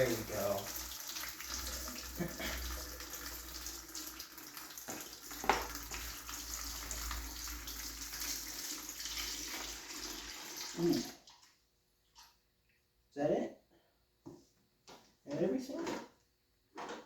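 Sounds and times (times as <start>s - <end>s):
liquid pouring into container: 0.0s - 12.4s.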